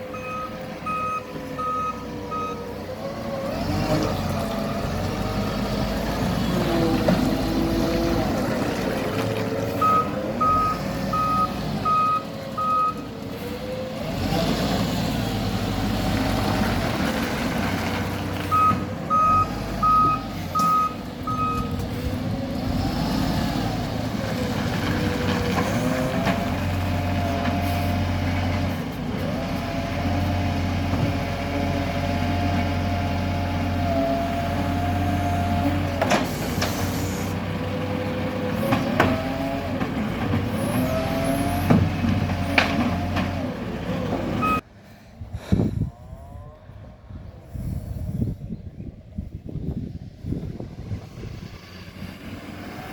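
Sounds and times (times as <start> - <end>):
garbage truck engine revving: 0.0 - 44.6, 50.7 - 52.9
reversing alarm beeps: 0.1 - 2.6, 9.8 - 13.0, 18.5 - 21.8.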